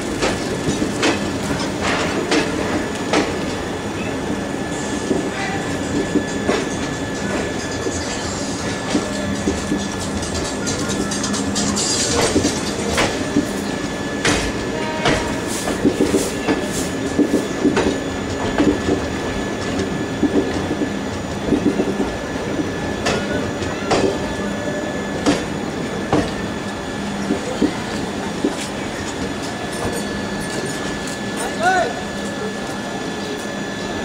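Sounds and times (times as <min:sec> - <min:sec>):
wheels clacking over rail joints: 0:00.0 - 0:03.6
train rolling noise: 0:00.0 - 0:34.0.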